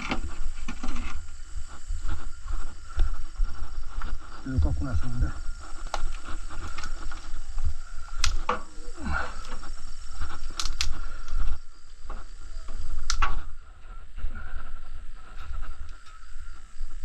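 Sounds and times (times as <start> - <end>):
twigs cracking in wood fire: 2.9 - 14.0, 14.6 - 17.0.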